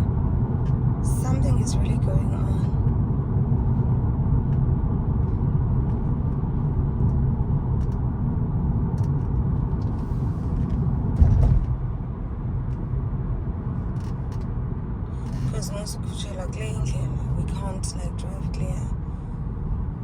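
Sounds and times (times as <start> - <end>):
car engine and road noise: 0.0 - 20.0
car bump: 11.2 - 12.0.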